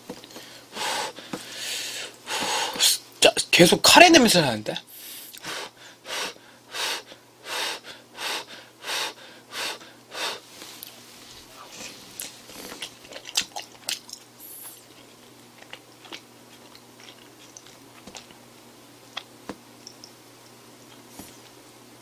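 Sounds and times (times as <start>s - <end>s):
person chewing rice: 9.7s - 21.6s.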